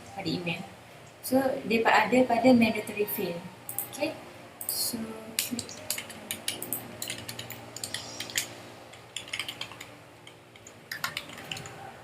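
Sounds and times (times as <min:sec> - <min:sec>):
faint steady hum: 0:00.0 - 0:12.0
computer keyboard clicks: 0:05.4 - 0:08.5, 0:09.2 - 0:11.8
computer mouse clicks: 0:05.4 - 0:08.5.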